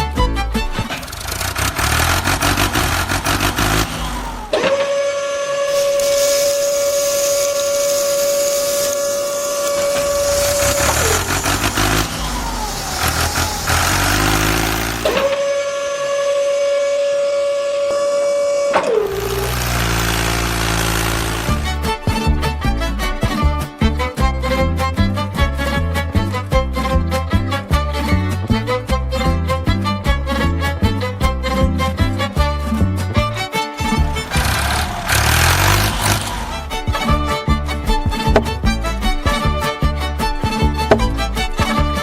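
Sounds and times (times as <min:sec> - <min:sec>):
rough mechanical noise: 0:00.5 - 0:23.2, 0:30.3 - 0:42.0
small motor whining: 0:00.7 - 0:22.2, 0:33.8 - 0:39.8.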